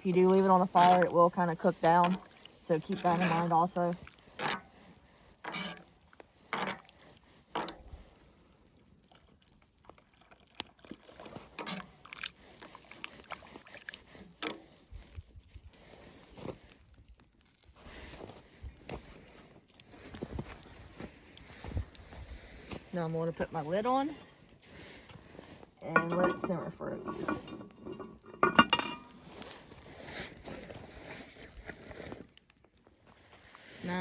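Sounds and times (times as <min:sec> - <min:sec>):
liquid sloshing: 0:09.0 - 0:14.6, 0:25.9 - 0:29.4
spoon scraping a pot: 0:25.9 - 0:29.4.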